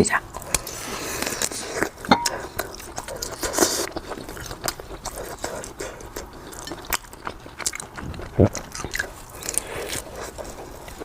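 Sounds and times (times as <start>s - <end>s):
chewing and biting sausage: 0.3s - 11.0s.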